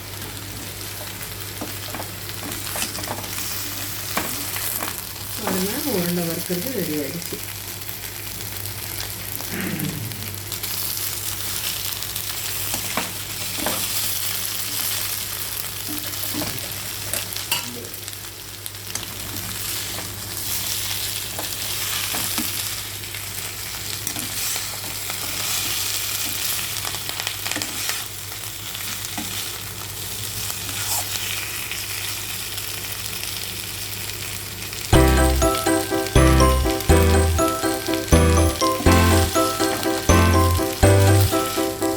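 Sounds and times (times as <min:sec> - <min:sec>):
meatballs sizzling in a pan: 0:10.4 - 0:36.4.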